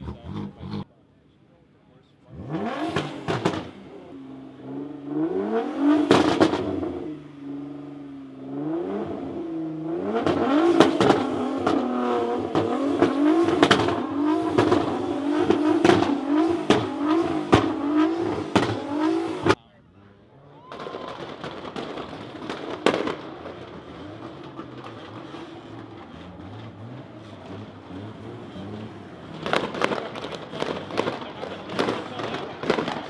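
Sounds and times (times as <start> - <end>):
car engine revving: 0.0 - 1.0, 2.2 - 19.6, 21.2 - 33.0
sharp cracks: 20.7 - 26.8, 29.2 - 33.0.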